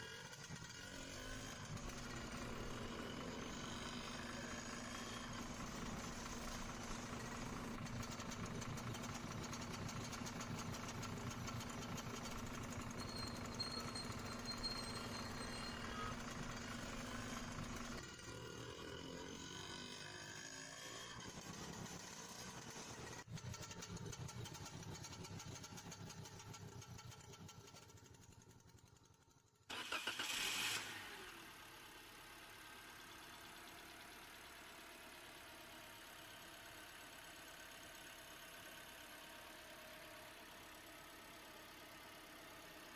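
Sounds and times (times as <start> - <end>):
model truck engines running: 0.0 - 42.9.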